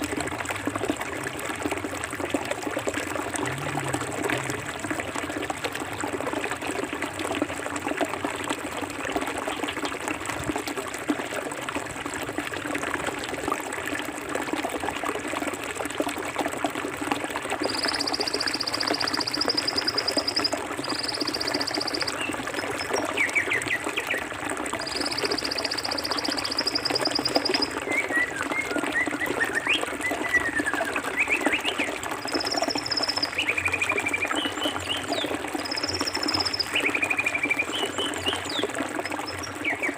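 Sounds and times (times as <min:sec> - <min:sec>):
birds chirping: 0:17.7 - 0:24.0.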